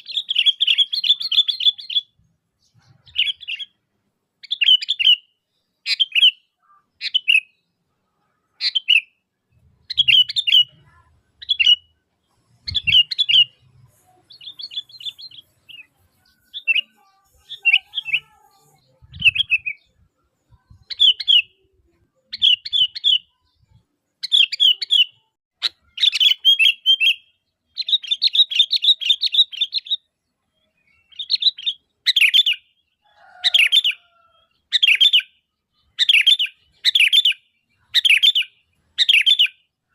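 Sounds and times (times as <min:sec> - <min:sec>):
bird rapid chattering: 0:09.8 - 0:18.4.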